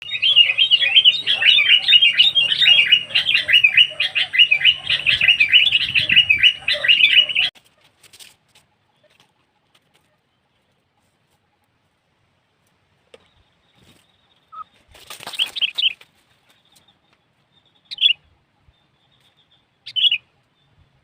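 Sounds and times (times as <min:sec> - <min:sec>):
bird chattering call: 0:00.0 - 0:07.5.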